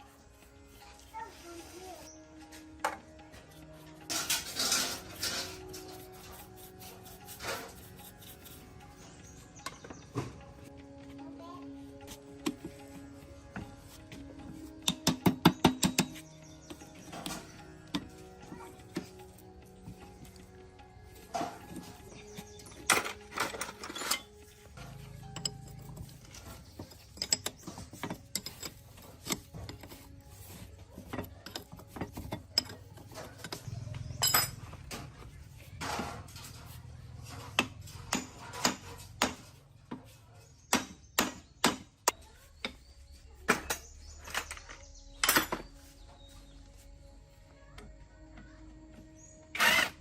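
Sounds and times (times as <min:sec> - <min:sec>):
hand tools clicking on metal: 0:14.6 - 0:35.0, 0:49.6 - 0:50.0.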